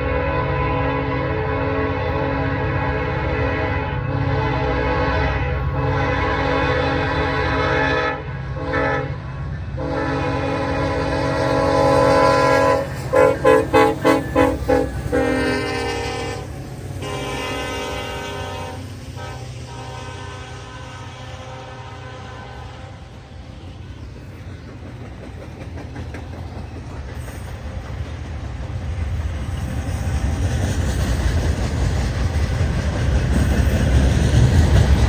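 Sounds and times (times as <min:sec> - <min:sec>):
locomotive air horn: 0:00.0 - 0:23.4
train rumbling past: 0:00.0 - 0:35.0.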